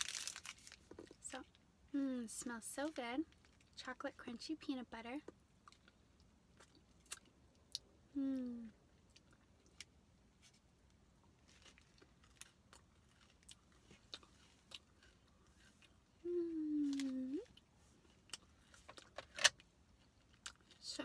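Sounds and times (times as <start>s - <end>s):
crisp crunches: 0.0s - 1.2s, 11.3s - 15.9s
person humming: 8.1s - 8.8s, 16.2s - 17.6s.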